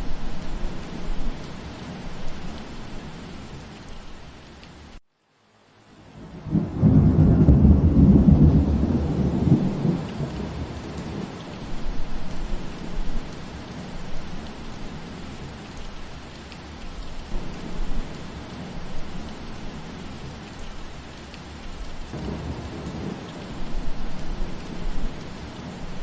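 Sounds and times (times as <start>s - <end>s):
steady rain falling: 0.0s - 26.0s
deep roll of thunder: 6.2s - 13.0s, 22.1s - 25.2s.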